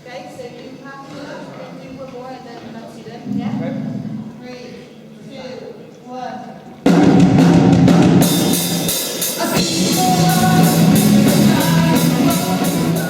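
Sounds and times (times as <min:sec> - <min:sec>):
drum kit with cymbals: 0:06.9 - 0:13.0
guitar: 0:06.9 - 0:13.0
rock band playing: 0:06.9 - 0:13.0.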